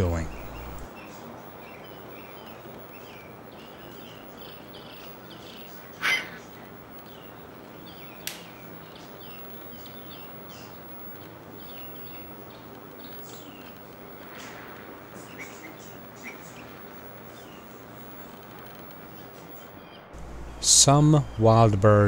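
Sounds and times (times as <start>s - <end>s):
birds chirping: 0.0s - 22.0s
faint background hiss: 0.0s - 22.0s
sharp click: 8.2s - 8.5s.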